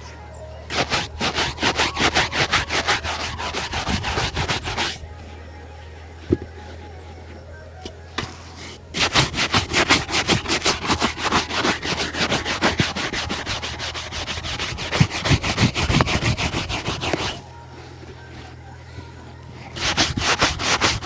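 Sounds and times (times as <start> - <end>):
low hum: 0.0 - 21.0
shoe being buffed: 0.7 - 5.0, 8.2 - 17.4, 19.7 - 21.0.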